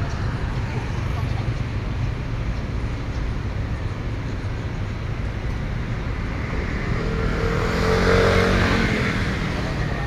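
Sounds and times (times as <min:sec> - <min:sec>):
road traffic rumble: 0:00.0 - 0:10.0
vehicle engine approaching: 0:04.2 - 0:10.0.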